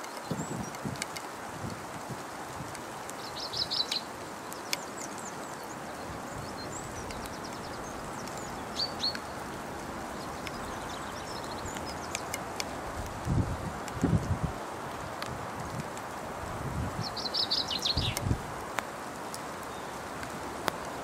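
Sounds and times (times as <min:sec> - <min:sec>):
small birds chirping: 0:00.0 - 0:01.3, 0:02.7 - 0:14.4, 0:16.9 - 0:21.0.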